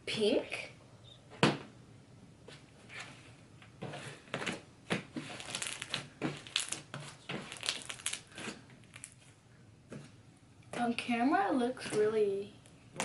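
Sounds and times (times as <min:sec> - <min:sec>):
slime squished by hand: 0:05.1 - 0:09.2.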